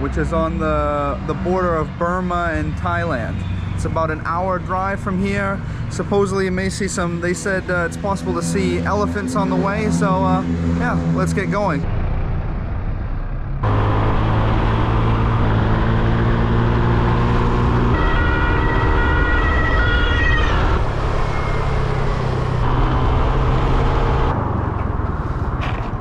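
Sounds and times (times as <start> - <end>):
high tone changing pitch: 7.8 - 11.8.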